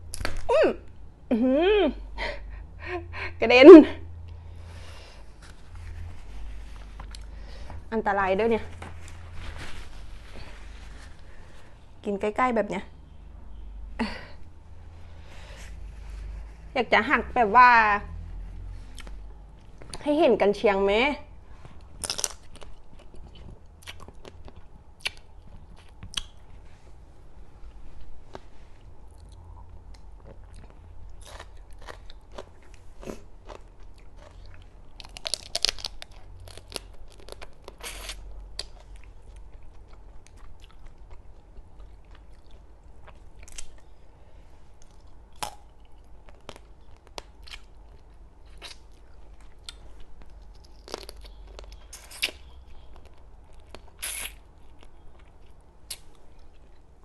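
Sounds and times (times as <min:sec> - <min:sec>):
crab shell cracking and crunching: 0:22.0 - 0:23.2, 0:34.9 - 0:39.0, 0:50.3 - 0:55.0
chewing: 0:29.1 - 0:44.0, 0:44.8 - 0:57.0.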